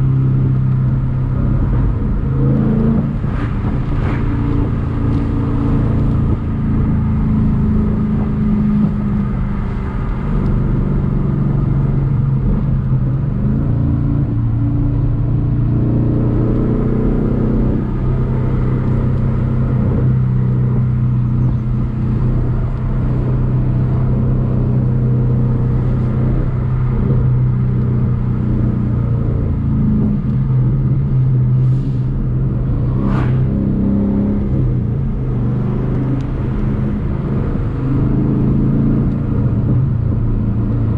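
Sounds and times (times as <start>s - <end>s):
car engine running: 17.2s - 40.9s.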